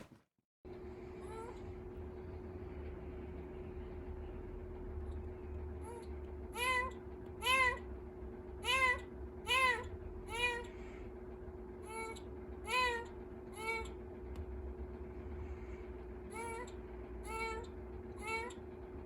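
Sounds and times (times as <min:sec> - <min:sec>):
steady hum: 0:00.7 - 0:19.0
kitten meowing: 0:06.6 - 0:07.8, 0:08.6 - 0:10.7.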